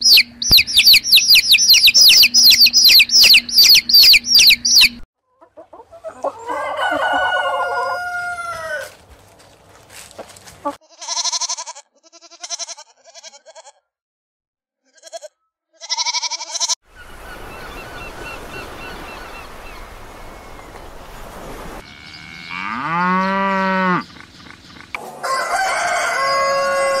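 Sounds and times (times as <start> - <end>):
sheep bleating: 10.7 - 13.9, 14.8 - 16.8.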